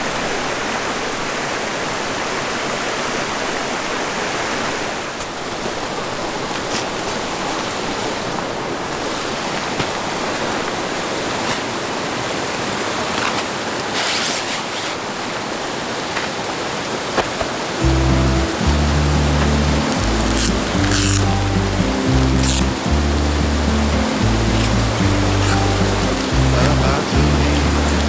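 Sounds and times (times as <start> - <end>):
river water rushing: 16.6 - 28.0.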